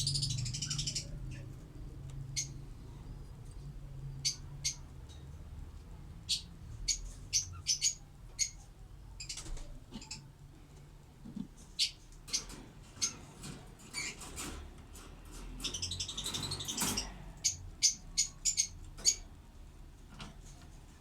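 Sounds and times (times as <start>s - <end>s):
lovebirds chirping: 0.0s - 2.6s, 4.2s - 4.9s, 6.2s - 10.3s, 11.8s - 14.4s, 15.4s - 19.3s.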